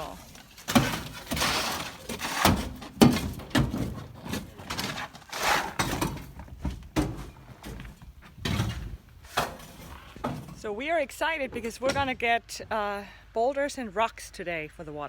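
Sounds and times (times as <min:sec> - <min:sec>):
tool knocks thuds and scrapes: 0:00.6 - 0:10.7.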